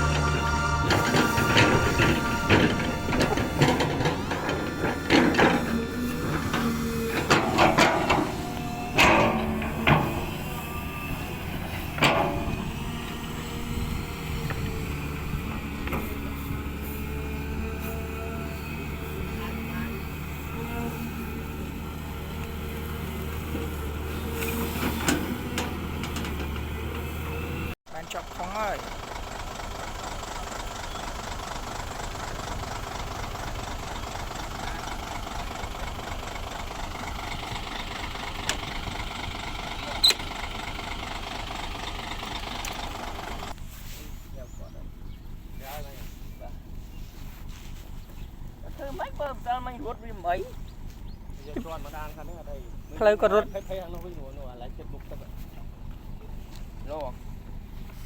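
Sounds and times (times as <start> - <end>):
sharp metallic clank: 0.0 - 10.6
diesel machinery engine running: 0.0 - 58.0.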